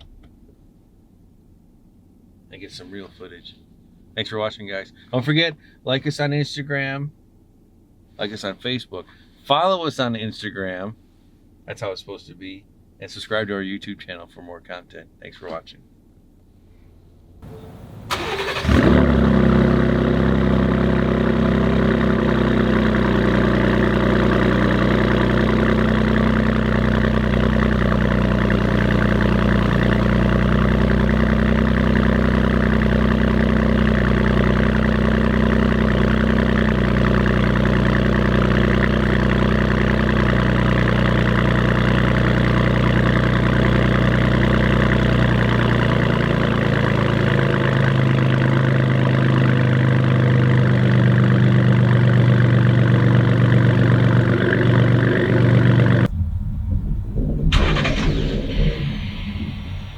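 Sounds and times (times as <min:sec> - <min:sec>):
car engine idling: 0:16.8 - 0:59.9
starter motor cranking: 0:18.1 - 0:19.3, 0:57.5 - 0:59.6.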